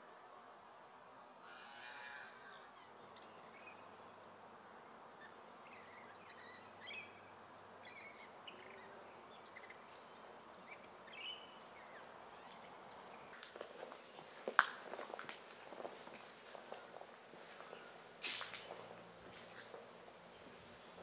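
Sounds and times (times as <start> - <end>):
faint background noise: 0.0 - 21.0
birds chirping: 4.8 - 21.0.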